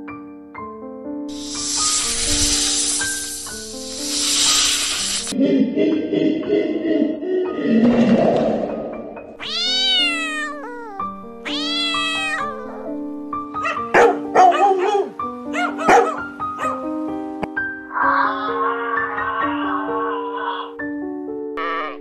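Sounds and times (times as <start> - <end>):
background music: 0.0 - 22.0
kitten meowing: 9.4 - 13.0
dog barking: 13.6 - 16.8.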